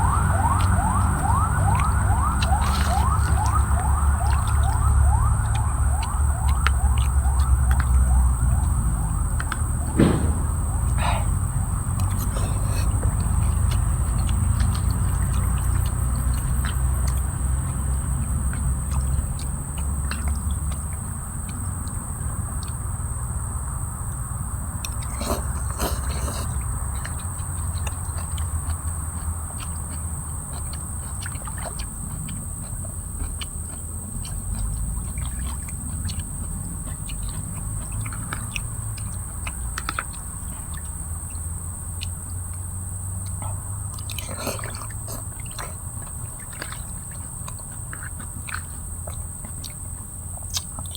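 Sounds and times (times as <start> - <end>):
low rumble: 9.8 - 13.2.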